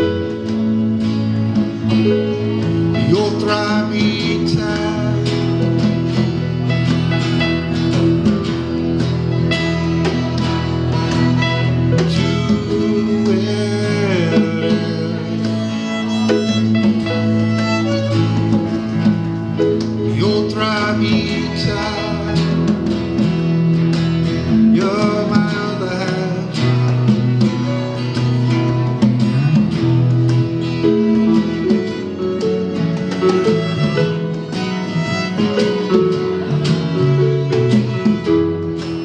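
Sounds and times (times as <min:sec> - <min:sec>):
live band playing: 0:00.0 - 0:39.0
sliding lead guitar line: 0:00.0 - 0:39.0.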